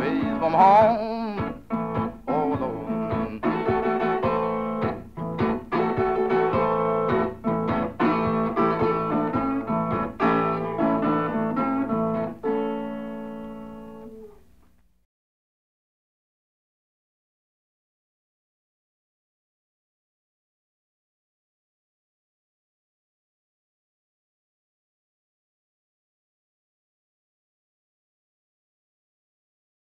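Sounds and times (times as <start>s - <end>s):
blues guitar music: 0.0s - 14.5s.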